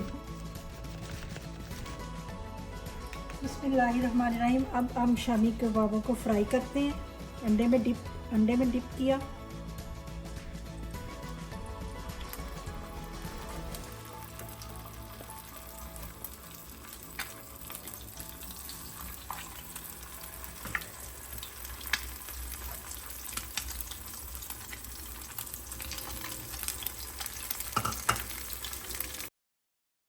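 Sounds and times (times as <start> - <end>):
meat sizzling in oil: 9.4 - 29.3.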